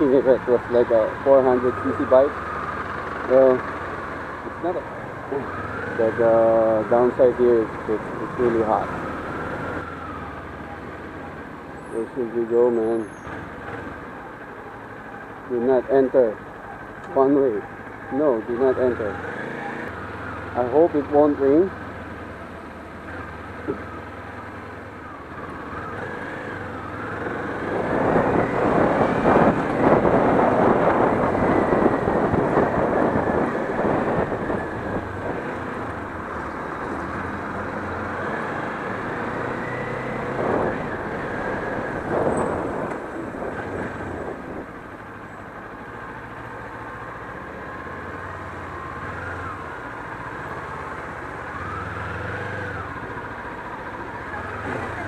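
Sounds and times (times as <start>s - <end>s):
wind rush: 27.7s - 35.4s, 40.3s - 44.8s.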